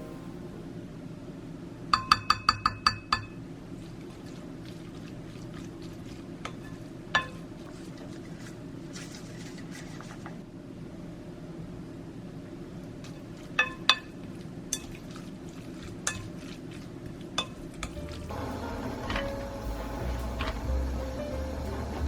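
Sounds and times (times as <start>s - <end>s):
steady low hum: 0.0s - 2.0s, 17.8s - 22.0s
dishes clinking: 6.5s - 7.4s, 13.1s - 14.1s, 17.4s - 21.2s.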